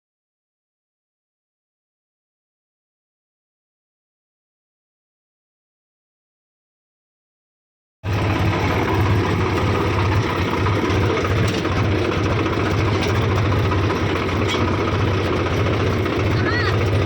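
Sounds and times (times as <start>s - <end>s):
thresher engine with rattle: 8.0s - 17.0s.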